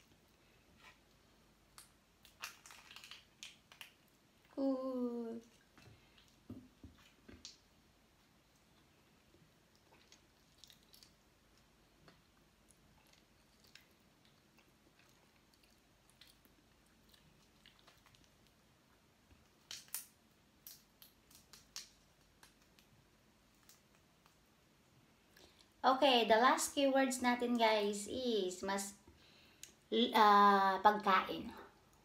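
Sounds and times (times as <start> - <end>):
small clicks while eating: 1.7 - 4.6, 9.7 - 18.6, 19.3 - 24.5
person chewing: 9.7 - 18.6.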